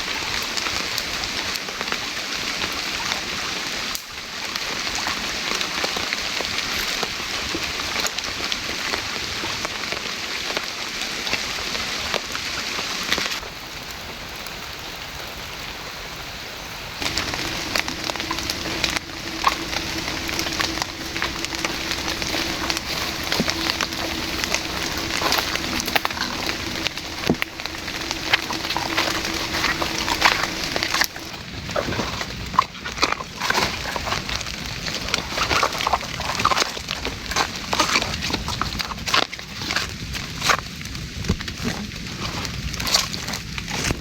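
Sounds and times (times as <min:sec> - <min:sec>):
rain pattering: 0:00.0 - 0:44.0
steady low hum: 0:17.0 - 0:32.4.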